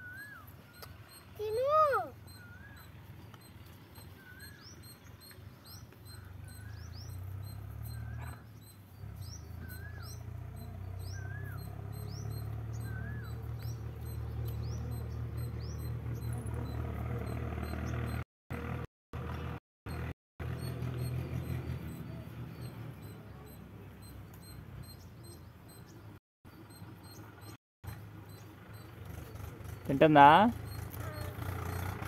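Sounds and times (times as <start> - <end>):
bird whistling call: 0.0 - 3.0, 4.0 - 16.4.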